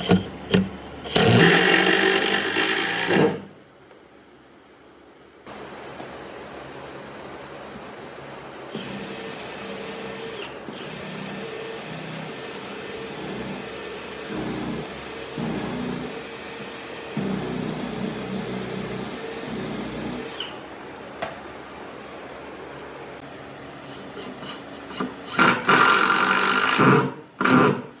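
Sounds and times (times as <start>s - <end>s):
power tool whining into wood: 1.1s - 3.5s, 25.0s - 27.8s.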